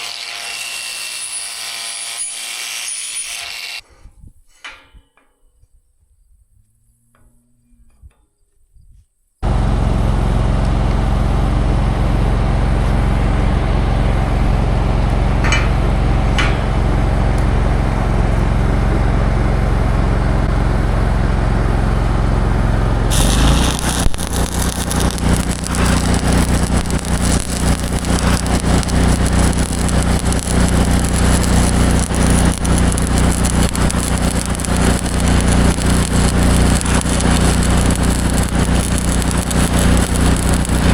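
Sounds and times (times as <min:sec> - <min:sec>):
vehicle engine running: 0:09.4 - 0:40.9.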